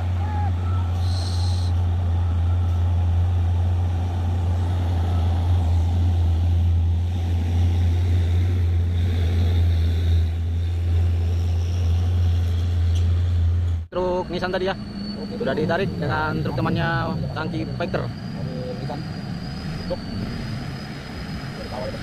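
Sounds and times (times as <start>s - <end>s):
heavy truck diesel engine labouring: 0.0s - 22.0s.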